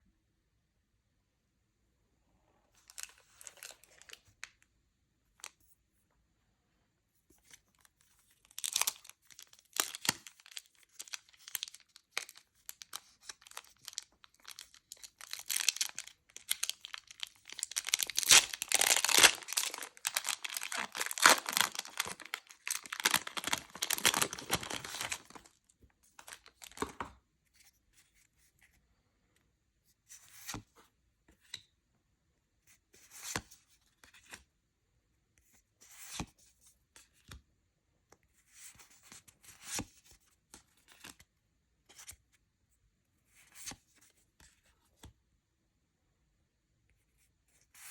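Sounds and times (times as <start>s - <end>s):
wrapper crinkling: 2.9s - 4.2s, 8.5s - 25.6s, 26.2s - 27.0s
card pack wrapper tearing: 8.5s - 25.5s, 26.2s - 27.0s.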